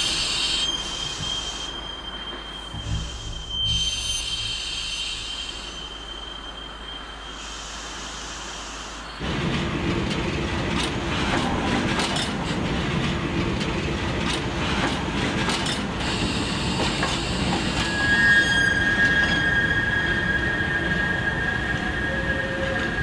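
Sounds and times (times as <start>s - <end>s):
train wheels rumbling on rails: 0.0s - 23.0s
high-pitched wheel squeal: 0.1s - 7.4s, 16.5s - 23.0s.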